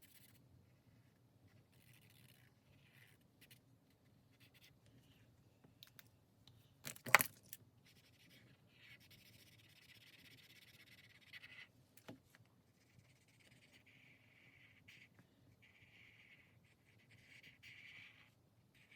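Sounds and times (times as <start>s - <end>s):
pen scratching on paper: 0.0s - 3.6s, 4.3s - 4.8s, 7.8s - 11.7s, 12.7s - 18.9s.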